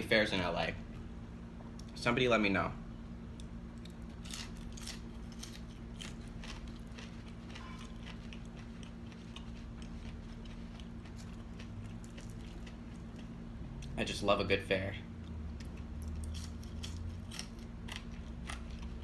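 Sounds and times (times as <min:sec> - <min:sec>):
steady low hum: 0:00.0 - 0:19.0
person chewing crunchy fries: 0:03.3 - 0:14.0, 0:15.2 - 0:19.0.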